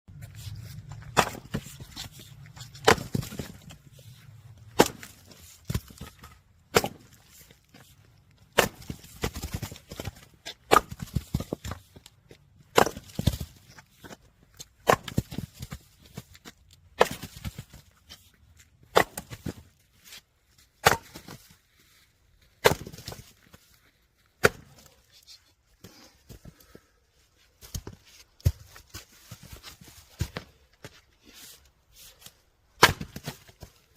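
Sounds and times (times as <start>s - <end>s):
log splitting crack: 0.8s - 3.9s, 4.6s - 7.5s, 8.4s - 14.2s, 32.8s - 33.7s.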